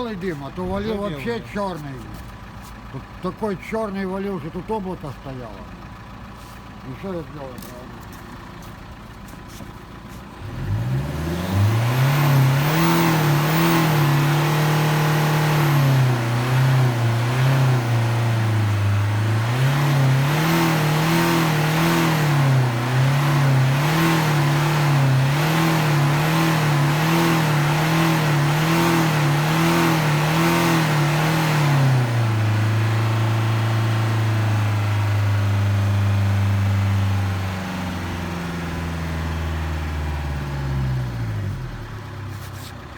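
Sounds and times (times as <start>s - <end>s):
car engine revving: 9.3s - 41.8s.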